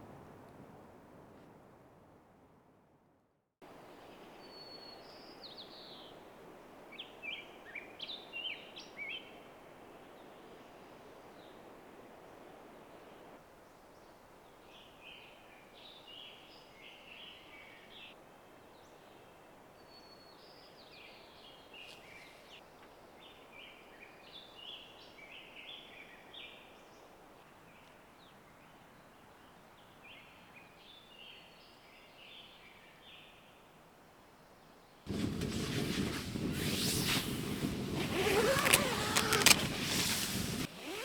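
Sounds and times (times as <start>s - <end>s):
soft steady hiss: 3.6s - 41.0s
songbirds chirping: 12.3s - 35.1s.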